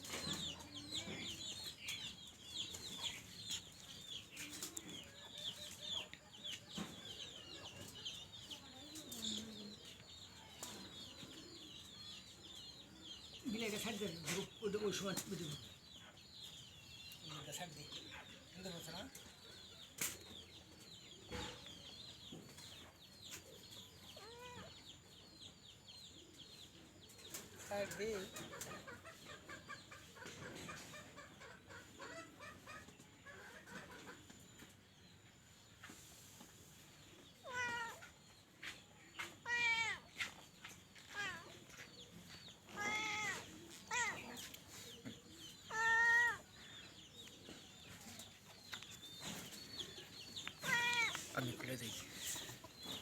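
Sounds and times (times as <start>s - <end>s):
cat meowing: 37.4s - 38.1s, 39.4s - 40.1s, 42.8s - 44.3s, 45.7s - 46.4s, 50.6s - 51.3s
chicks peeping: 46.4s - 53.0s.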